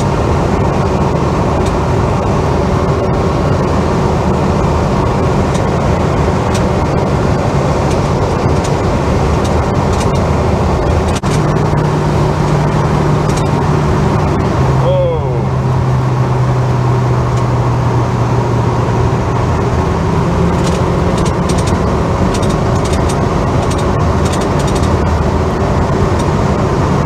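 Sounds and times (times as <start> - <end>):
car engine drone: 0.0 - 27.0
low hum: 0.0 - 27.0
road noise: 0.0 - 27.0.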